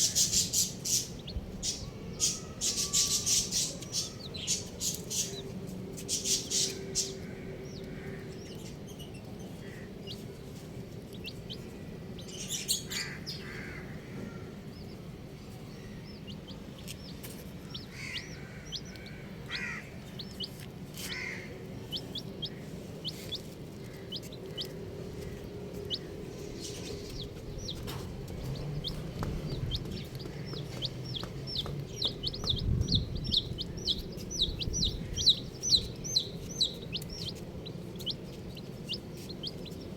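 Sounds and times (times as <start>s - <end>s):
baby chicks peeping: 0.0s - 39.9s
lower clucking calls: 16.2s - 39.9s.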